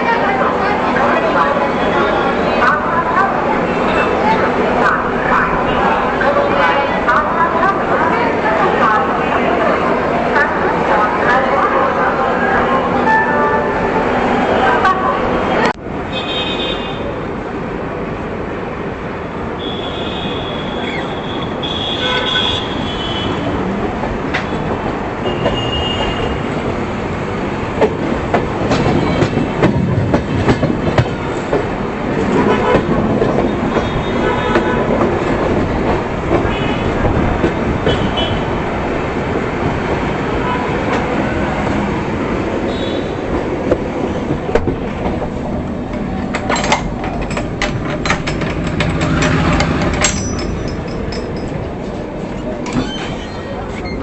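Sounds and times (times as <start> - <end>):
train rumbling at speed: 0.0 - 54.0
wheels clacking over rail joints: 43.3 - 54.0.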